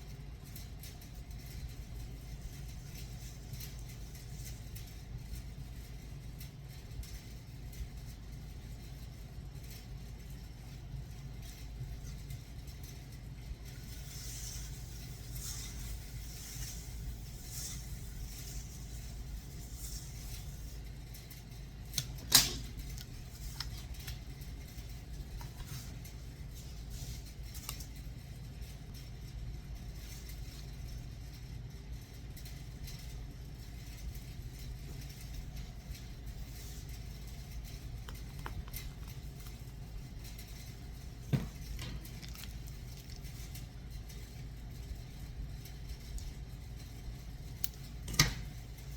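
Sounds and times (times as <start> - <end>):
steady low hum: 0.0 - 48.9
utensils clicking and tapping dishes: 13.6 - 28.0.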